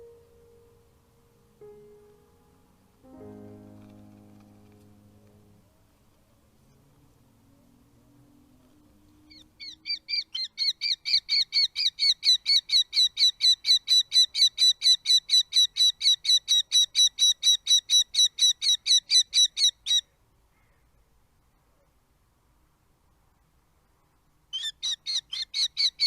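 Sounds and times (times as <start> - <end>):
falcon calling: 24.6 - 26.0.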